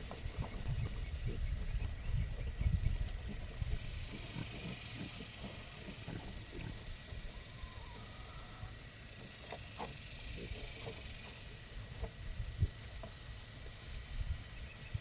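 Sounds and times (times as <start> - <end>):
pigs grunting: 3.7 - 8.7.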